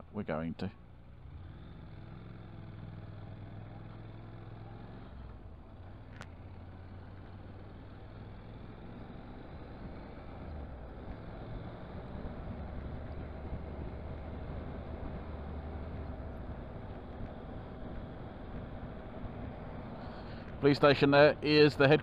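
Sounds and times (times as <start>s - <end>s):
wind and road noise: 0.0s - 22.0s
motorcycle engine running: 0.8s - 22.0s.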